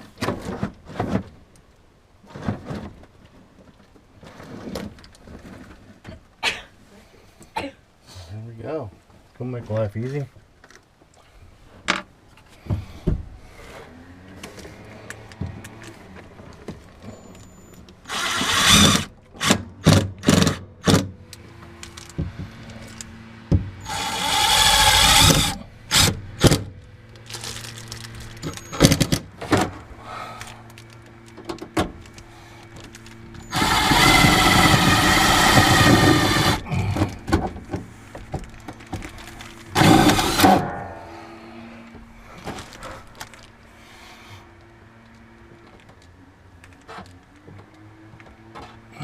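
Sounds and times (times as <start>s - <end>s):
power tool bursts: 18.1s - 21.0s, 23.8s - 26.7s, 33.4s - 37.1s, 39.7s - 41.0s
steady low hum: 29.2s - 46.6s.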